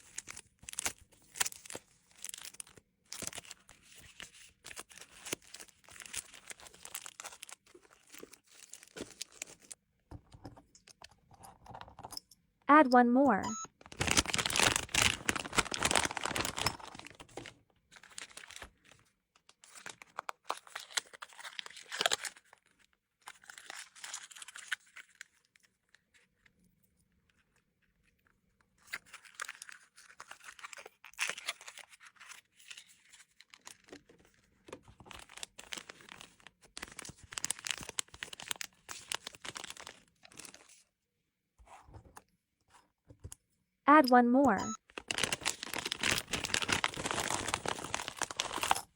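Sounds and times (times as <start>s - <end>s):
plastic bags crinkling: 0.0s - 9.8s, 13.8s - 19.0s, 35.0s - 40.7s, 44.8s - 48.9s.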